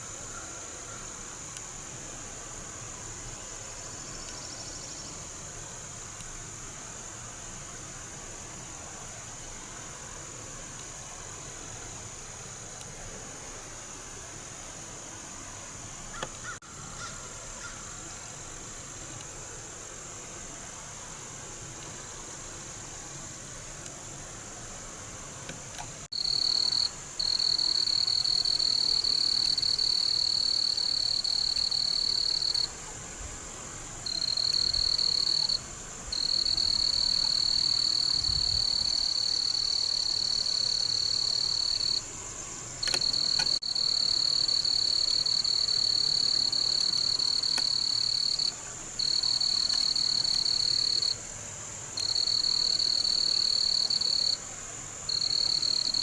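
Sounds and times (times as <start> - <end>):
frog or insect buzzing trill: 26.2 - 32.7, 36.2 - 42.0, 42.8 - 51.2, 52.0 - 54.4, 55.1 - 56.0.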